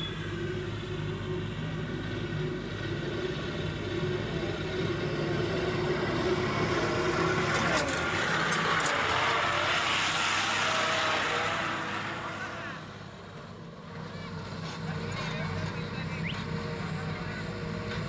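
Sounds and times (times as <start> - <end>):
heavy diesel engine running: 0.0 - 10.8, 12.8 - 18.0
rushing clattering noise: 7.2 - 10.6.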